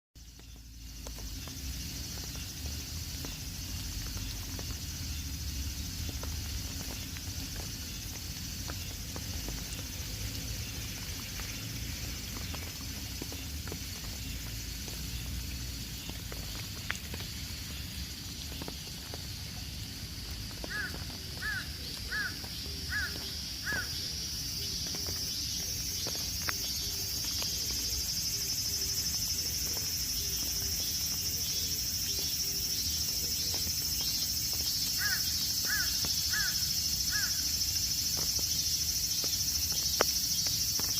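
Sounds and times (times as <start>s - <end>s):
high-pitched insect chorus: 0.2s - 40.9s
bird calling: 20.7s - 24.2s, 35.0s - 37.4s.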